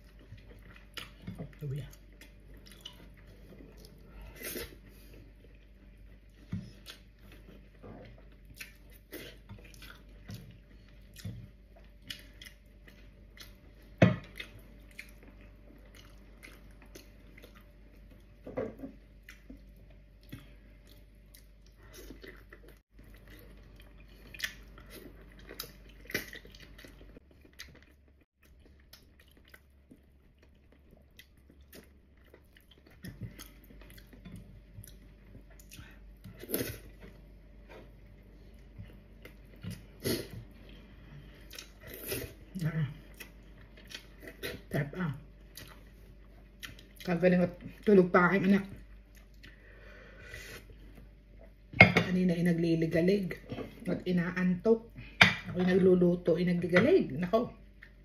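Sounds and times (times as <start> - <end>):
wet chewing and lip smacking: 0.0 - 4.0, 8.3 - 18.4, 19.2 - 37.0.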